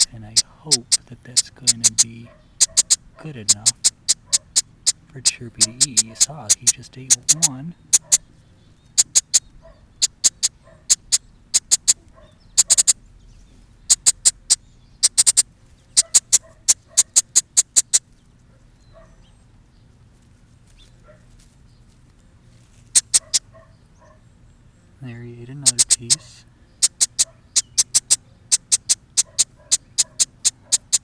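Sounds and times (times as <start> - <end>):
baby bird chirping: 0.0 - 18.2, 22.9 - 24.2, 25.0 - 31.0.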